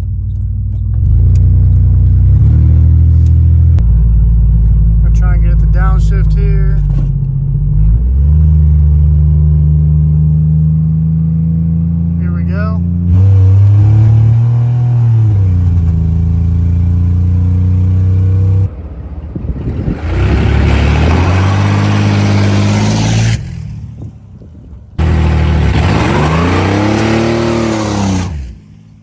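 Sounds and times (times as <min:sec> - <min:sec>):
truck engine revving hard: 0:07.6 - 0:23.9, 0:25.0 - 0:29.0.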